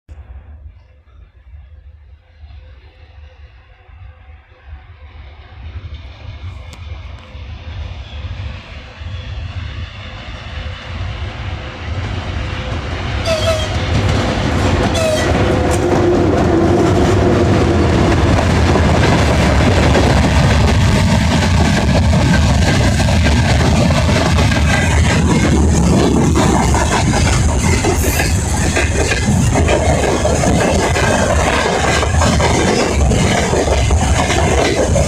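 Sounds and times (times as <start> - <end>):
freight train rumbling on rails: 0.1 - 35.0
train horn toots: 13.2 - 13.9, 14.9 - 15.9.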